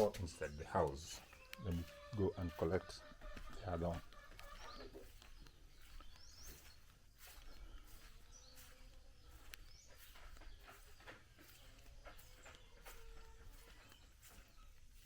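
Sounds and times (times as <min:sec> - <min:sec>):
faint bird chirps: 0:04.1 - 0:15.0.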